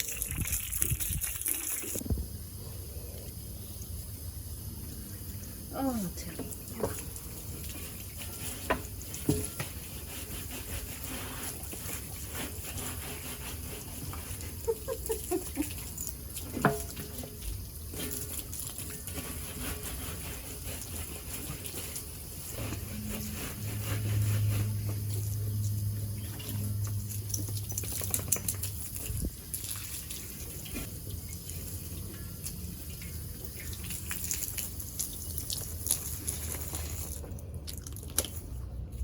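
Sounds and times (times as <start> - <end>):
water running and splashing: 0.0 - 2.0, 24.9 - 38.4
wet broom scrubbing metal drum: 5.8 - 37.4.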